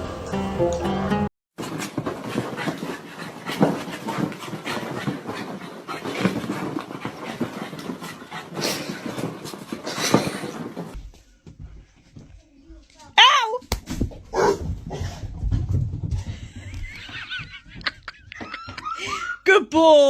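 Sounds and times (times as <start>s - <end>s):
dog panting: 1.6s - 11.0s.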